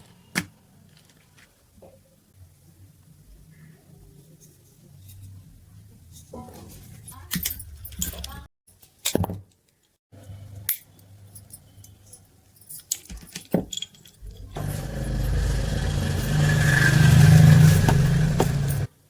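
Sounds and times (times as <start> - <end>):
small metal parts rattling: 11.4 - 14.6
electric drill motor running: 14.6 - 18.9.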